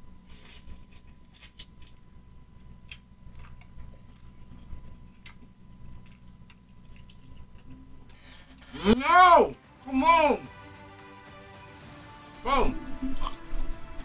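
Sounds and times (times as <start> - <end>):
chewing with wet mouth smacks: 2.8 - 8.2.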